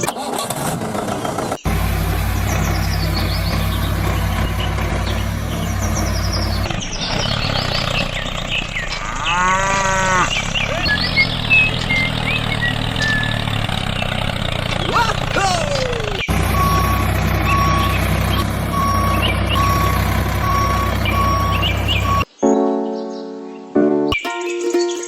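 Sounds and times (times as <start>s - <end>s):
engine running: 0.0s - 22.3s
bird chirps: 2.3s - 25.0s
cow mooing: 8.9s - 10.9s.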